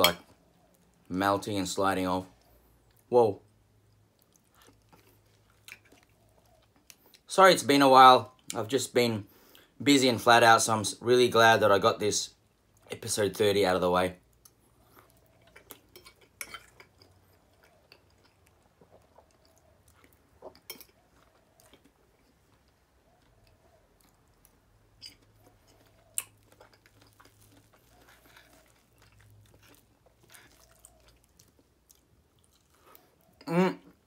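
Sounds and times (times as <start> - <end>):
faint chewing: 2.3 - 7.3, 14.3 - 34.0.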